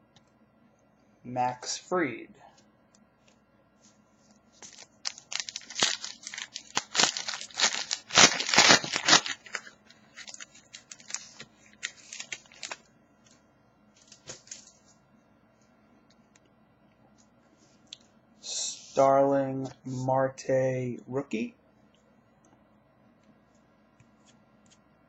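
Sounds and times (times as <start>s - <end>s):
wrapper tearing and crinkling: 4.6s - 12.9s, 14.0s - 14.8s.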